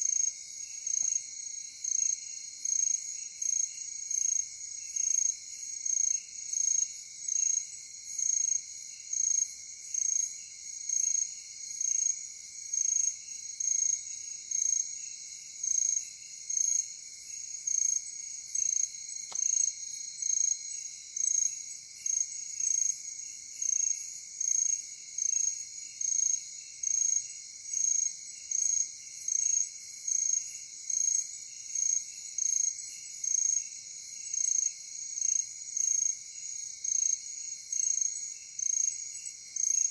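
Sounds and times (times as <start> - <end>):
faint click: 19.2 - 19.5.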